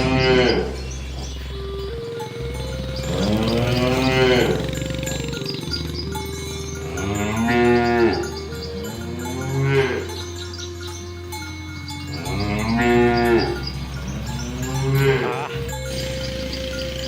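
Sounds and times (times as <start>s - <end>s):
cattle mooing: 2.1s - 10.6s, 12.1s - 17.0s.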